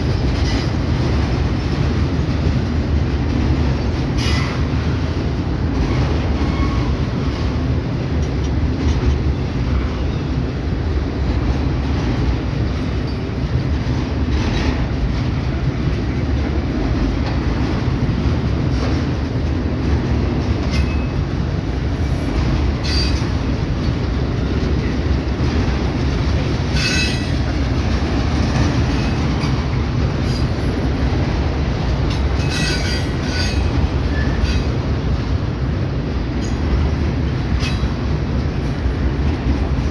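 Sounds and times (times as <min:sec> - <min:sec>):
train wheels rumbling on rail: 0:00.0 - 0:39.9
high-pitched wheel squeals: 0:22.1 - 0:23.3, 0:26.8 - 0:27.4, 0:32.4 - 0:34.7.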